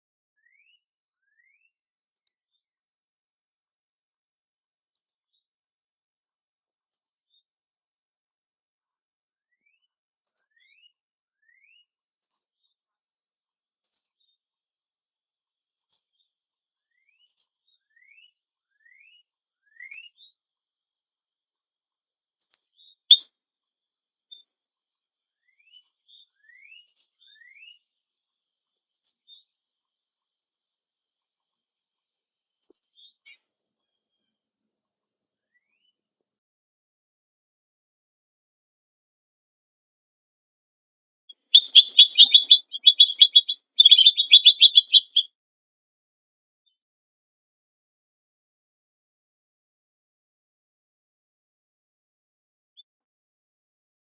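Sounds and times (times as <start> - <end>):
songbirds chirping: 0.4 - 2.7, 4.9 - 5.5, 6.8 - 7.5, 9.5 - 12.8, 13.8 - 14.4, 15.6 - 23.2, 23.8 - 34.3, 41.3 - 45.3.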